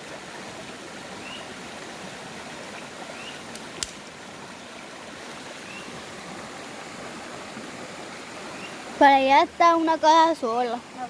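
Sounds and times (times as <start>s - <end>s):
stream water rushing: 0.0s - 11.0s
sharp snap: 3.5s - 4.1s.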